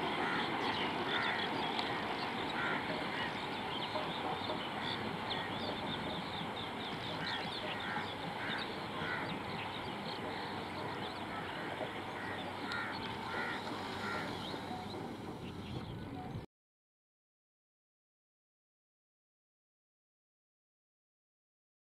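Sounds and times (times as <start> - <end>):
freight train rolling: 0.0 - 16.4
birds chirping: 0.0 - 16.5.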